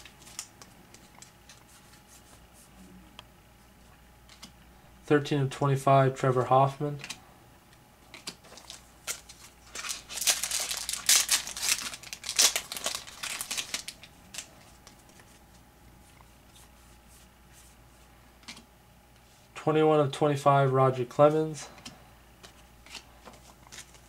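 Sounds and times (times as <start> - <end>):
foil wrapper tearing and crinkling: 8.4 - 14.8.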